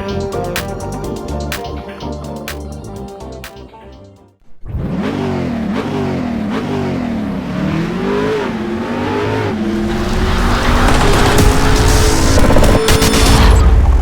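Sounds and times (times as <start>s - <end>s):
engine revving: 4.6s - 14.0s.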